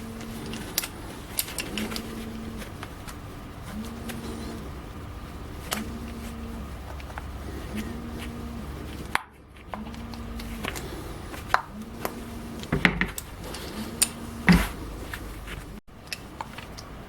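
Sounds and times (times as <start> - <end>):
short low hum: 0.0 - 15.8
tools clicking and knocking: 12.6 - 14.8.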